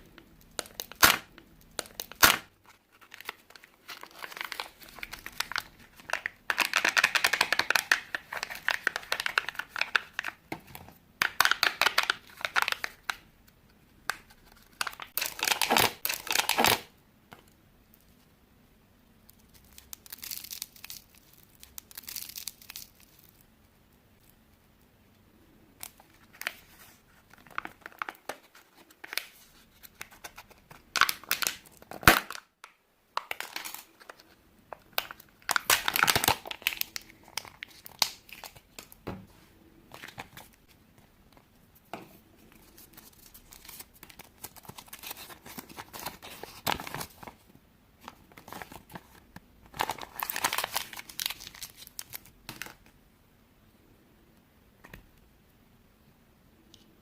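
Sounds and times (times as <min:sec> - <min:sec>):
wrappers crinkling and tearing: 0:01.9 - 0:10.4, 0:35.0 - 0:38.8, 0:48.4 - 0:52.8.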